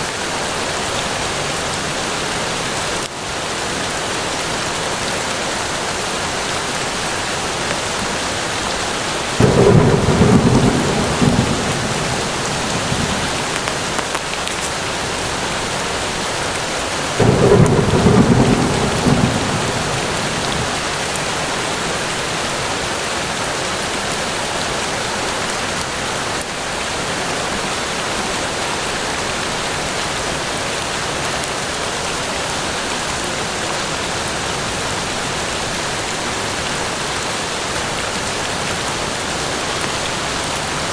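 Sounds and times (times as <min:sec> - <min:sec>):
rain falling in a forest: 0:00.0 - 0:40.9
thunder rumbling: 0:09.3 - 0:14.4, 0:17.2 - 0:21.9.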